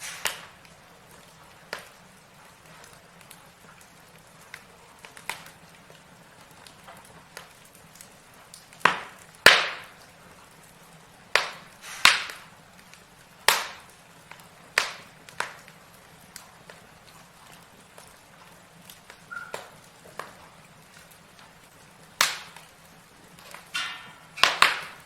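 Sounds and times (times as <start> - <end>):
logs crackling in fireplace: 0.0 - 25.0.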